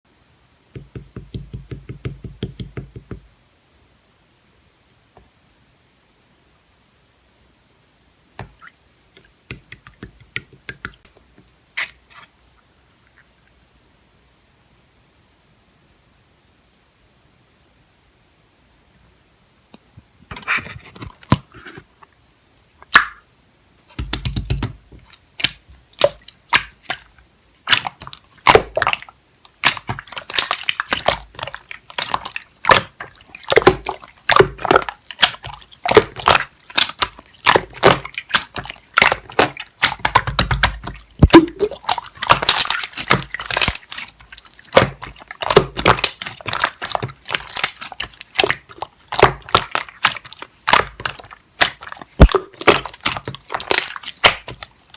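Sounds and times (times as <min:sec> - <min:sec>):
slime squished by hand: 0:24.0 - 0:54.9.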